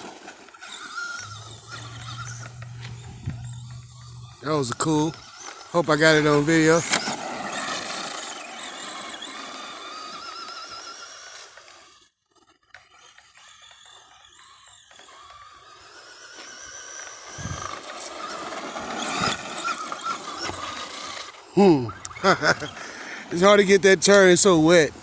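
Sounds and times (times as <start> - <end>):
electric motor whining: 0.5 - 25.0
low thump: 1.3 - 4.4.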